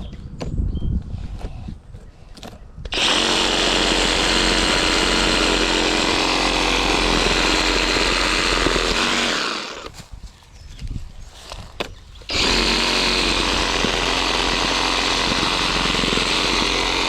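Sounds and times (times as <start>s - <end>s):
reciprocating saw cutting branch: 2.9s - 10.1s, 11.8s - 17.0s.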